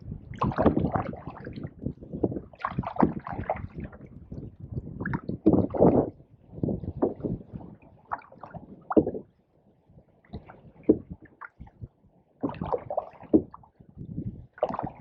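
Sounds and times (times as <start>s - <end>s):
paddle strokes in water: 0.2s - 15.0s
paddle splash: 0.3s - 1.7s, 2.5s - 9.3s, 12.4s - 13.8s, 14.5s - 15.0s.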